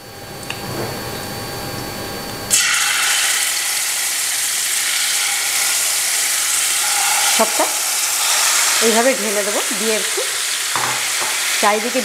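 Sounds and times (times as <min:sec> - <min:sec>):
chicken sizzling in hot oil: 0:02.5 - 0:12.0.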